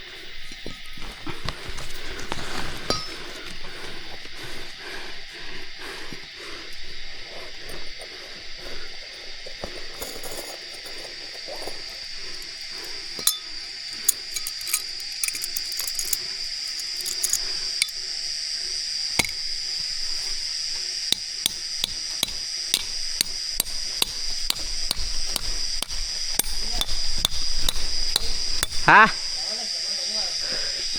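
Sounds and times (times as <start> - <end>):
insects droning: 0.0 - 30.9
sharp knocks or clicks: 21.2 - 28.9.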